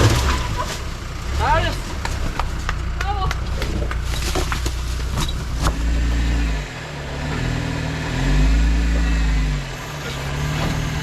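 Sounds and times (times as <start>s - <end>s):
engine revving under load: 0.0s - 11.0s.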